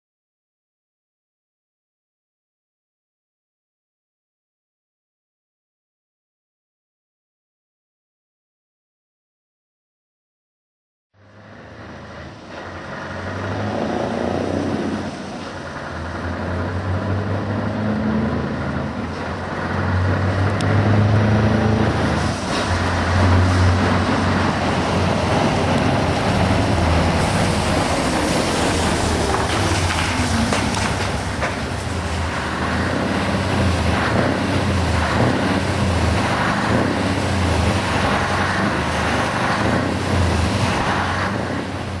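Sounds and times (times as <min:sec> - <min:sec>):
truck diesel engine running: 0:11.2 - 0:42.0.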